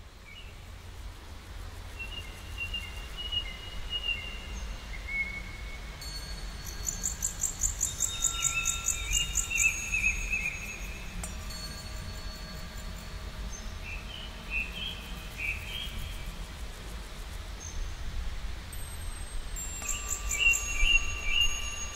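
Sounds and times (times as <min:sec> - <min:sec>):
high pulsing bird trill: 0:06.6 - 0:16.3, 0:19.8 - 0:21.9
birds whistling: 0:06.8 - 0:11.1, 0:19.8 - 0:21.9.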